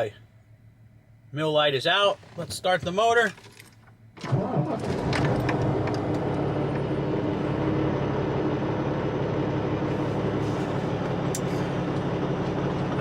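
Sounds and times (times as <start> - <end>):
diesel truck engine idling: 5.6 - 13.0.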